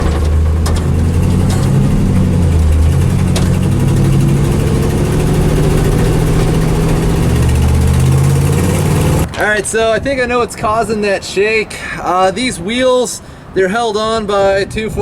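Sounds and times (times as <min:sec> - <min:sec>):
truck engine running: 0:00.0 - 0:09.3.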